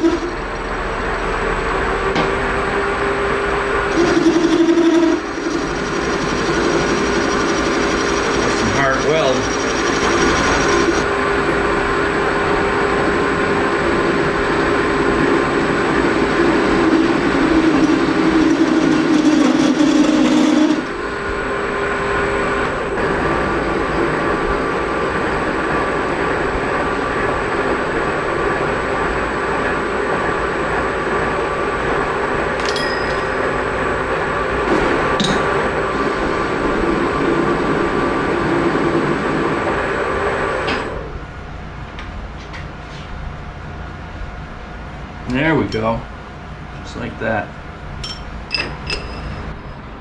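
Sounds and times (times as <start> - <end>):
machine tool working steel: 0.0 - 13.3, 15.1 - 21.3, 32.5 - 39.2
quiet machine hum: 0.0 - 50.0.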